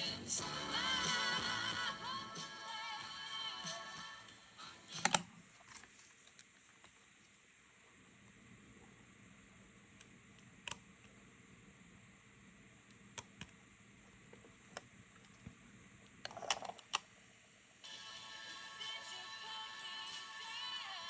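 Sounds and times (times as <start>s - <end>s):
background music: 0.0s - 5.2s, 17.8s - 21.0s.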